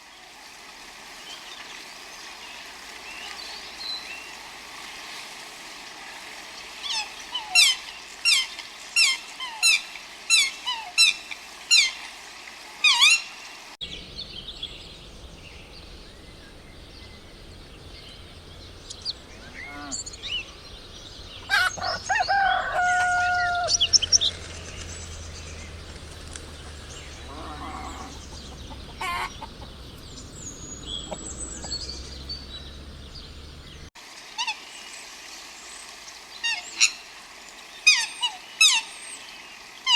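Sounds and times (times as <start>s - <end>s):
scattered bird calls: 12.8s - 39.9s.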